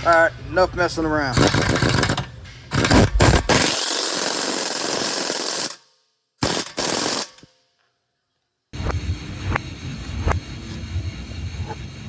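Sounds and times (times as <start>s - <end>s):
impact wrench hammering: 1.4s - 5.8s, 6.4s - 7.5s.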